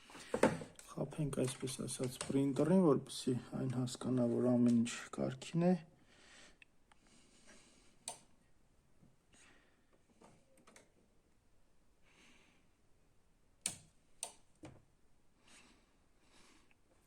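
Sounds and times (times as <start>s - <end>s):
clicks and taps of handling parts: 0.3s - 2.5s.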